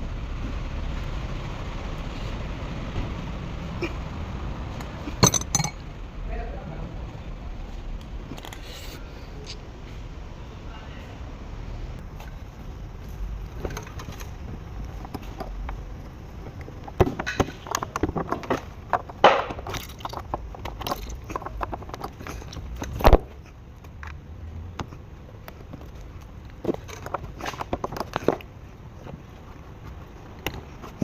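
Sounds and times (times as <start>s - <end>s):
hand tools clinking on metal: 5.2s - 5.8s.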